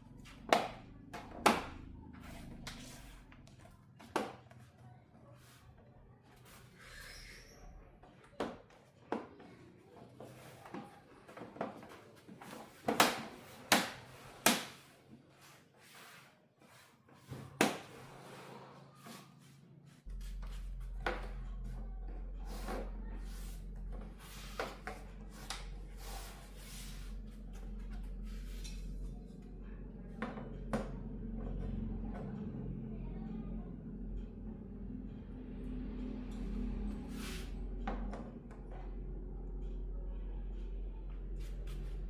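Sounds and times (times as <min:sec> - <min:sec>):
low electrical hum: 0:19.8 - 0:42.0.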